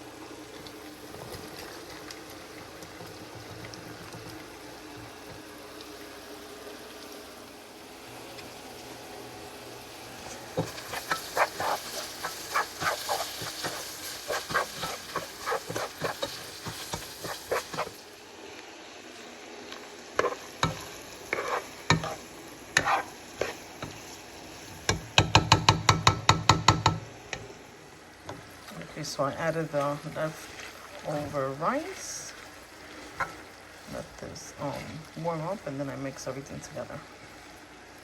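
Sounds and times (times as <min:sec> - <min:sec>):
food sizzling in a pot: 0:00.0 - 0:38.0
spoon scraping and knocking pot: 0:10.6 - 0:17.9, 0:20.2 - 0:22.2, 0:22.8 - 0:24.0.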